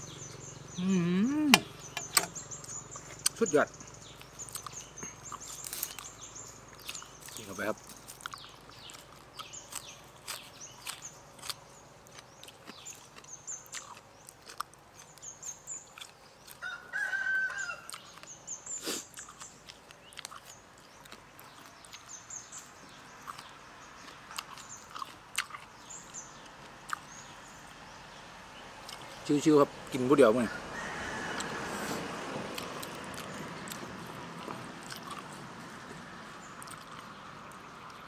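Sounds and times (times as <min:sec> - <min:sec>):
small birds chirping: 0:00.0 - 0:30.6, 0:32.6 - 0:38.0
chewing crisp raw greens: 0:01.6 - 0:27.4, 0:28.8 - 0:29.4, 0:31.3 - 0:38.0
rooster crowing: 0:16.6 - 0:18.0, 0:30.4 - 0:32.3.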